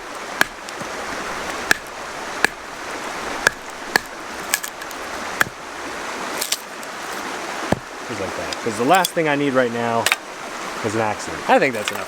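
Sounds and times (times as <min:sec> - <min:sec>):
wood cracking under knife: 0:00.0 - 0:05.6, 0:06.4 - 0:06.7.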